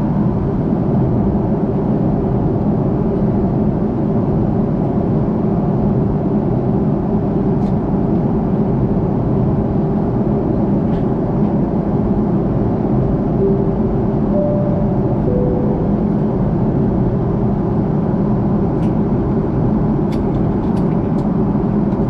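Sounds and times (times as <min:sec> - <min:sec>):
faint brief tones: 0:13.4 - 0:16.5.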